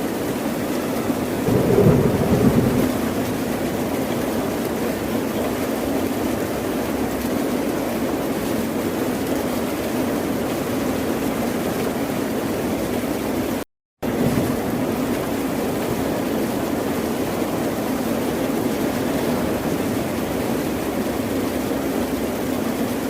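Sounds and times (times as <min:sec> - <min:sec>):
ocean surf rushing: 0:01.4 - 0:04.4.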